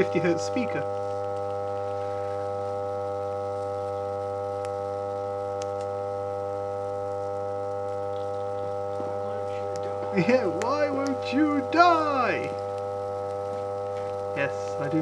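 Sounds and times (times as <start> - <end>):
motor electrical hum: 0.0 - 15.0
faint ticks: 0.9 - 1.6, 5.5 - 6.0.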